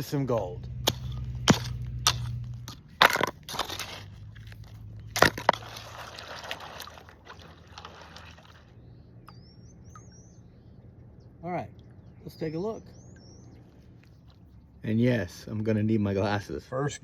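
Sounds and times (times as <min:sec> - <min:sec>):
rocks and gravel clattering: 0:00.7 - 0:08.8.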